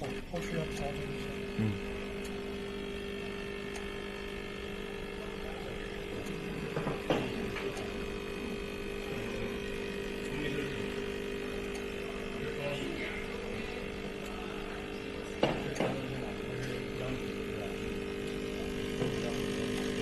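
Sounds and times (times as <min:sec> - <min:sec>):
coffee maker humming: 0:00.0 - 0:20.0.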